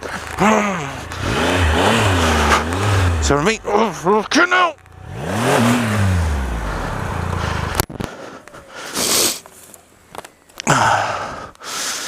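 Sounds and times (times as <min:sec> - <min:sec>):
motorcycle engine running: 0:00.0 - 0:08.0
heavy breathing: 0:06.5 - 0:09.5, 0:10.6 - 0:12.0.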